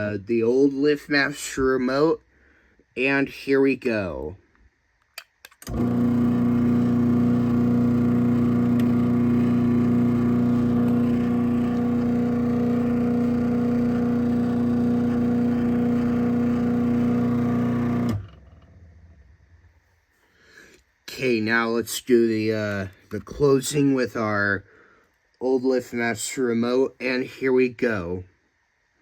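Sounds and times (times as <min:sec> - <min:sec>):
garage door opener motor hum: 0:05.6 - 0:19.3.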